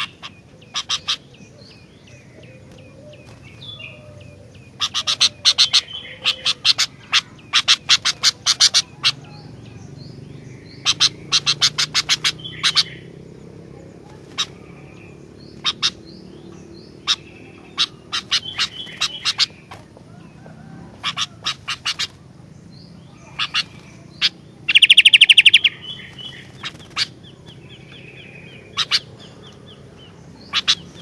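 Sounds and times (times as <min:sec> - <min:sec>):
bird calling harsh notes: 0:02.5 - 0:13.2, 0:23.1 - 0:29.5.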